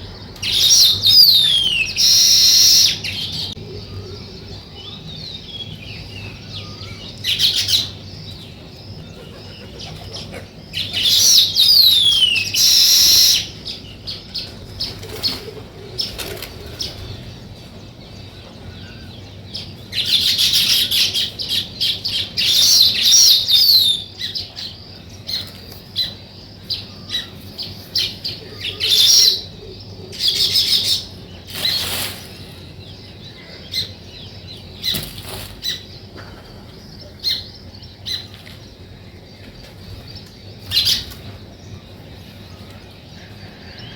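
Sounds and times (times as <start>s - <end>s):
small songbirds chirping: 0.0s - 43.9s.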